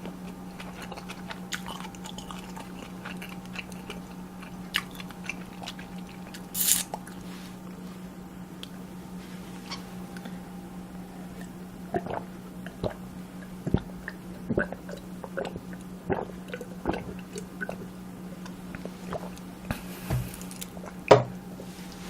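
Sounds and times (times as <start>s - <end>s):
chewing and wet mouth sounds: 0.0s - 7.3s, 11.2s - 21.1s
steady low hum: 0.0s - 22.0s.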